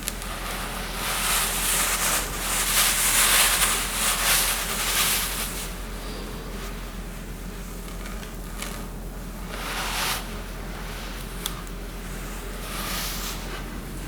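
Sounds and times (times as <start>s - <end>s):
hiss: 0.0s - 6.6s, 9.4s - 14.0s.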